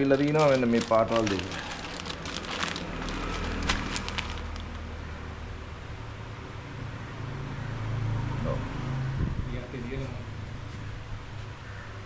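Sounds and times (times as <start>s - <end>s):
plastic packets crinkling: 0.0s - 5.0s.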